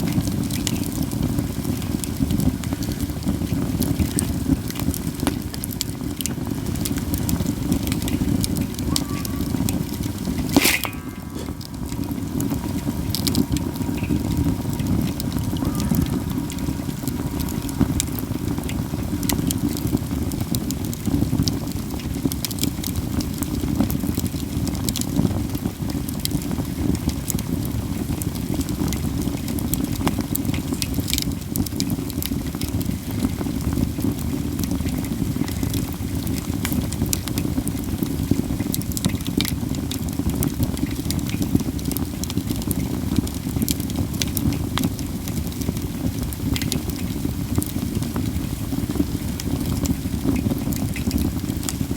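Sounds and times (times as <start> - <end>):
campfire crackling and popping: 0.0 - 51.9
low fire rumble: 0.0 - 51.9.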